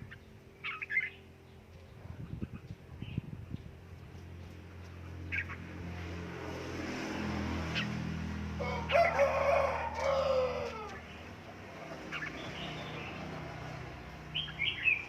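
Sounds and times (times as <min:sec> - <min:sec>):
rooster crowing: 0:08.6 - 0:11.0.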